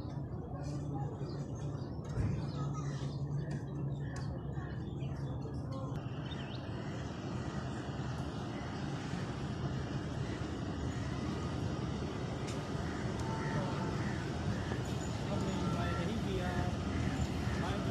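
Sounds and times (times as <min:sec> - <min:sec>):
train rumbling: 0:06.3 - 0:17.9.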